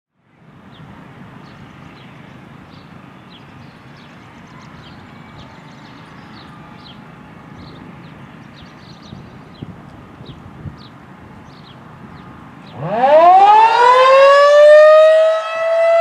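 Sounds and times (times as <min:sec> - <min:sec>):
small birds chirping: 0:00.7 - 0:12.9.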